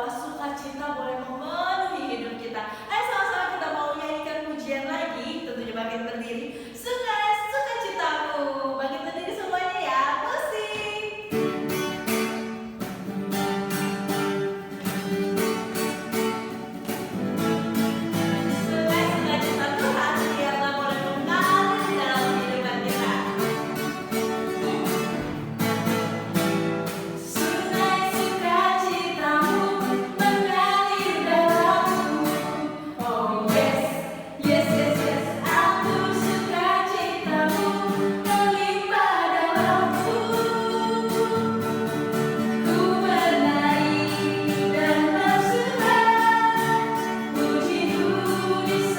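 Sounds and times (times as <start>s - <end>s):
children's song with voices singing: 17.9s - 23.9s, 27.2s - 48.9s.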